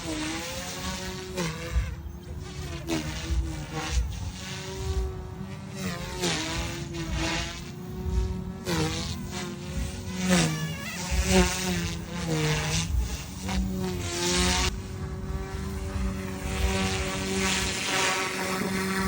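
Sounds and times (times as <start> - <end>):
rc helicopter motor whine: 0.0 - 19.0.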